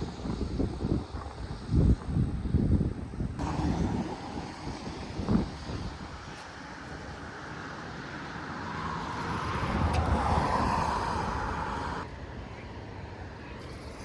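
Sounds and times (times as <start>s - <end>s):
road vehicle passing by: 3.4s - 14.0s.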